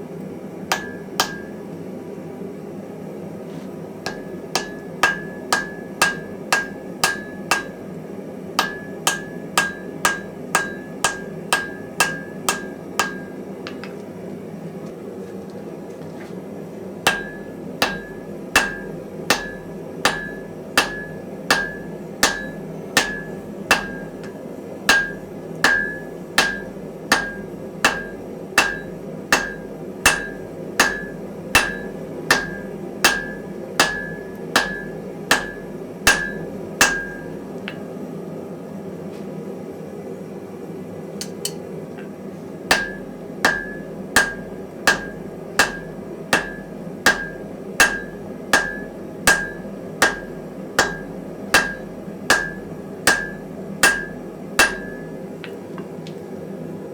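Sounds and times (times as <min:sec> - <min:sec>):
hammer ringing on anvil: 0:00.7 - 0:01.6, 0:04.1 - 0:07.8, 0:08.6 - 0:13.9, 0:17.1 - 0:37.3, 0:42.7 - 0:55.1
gas forge roaring: 0:16.4 - 0:37.6, 0:41.2 - 0:55.3.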